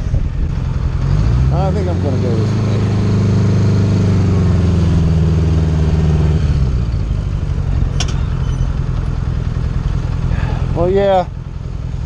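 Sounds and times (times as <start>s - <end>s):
motorcycle engine running: 6.6s - 12.0s.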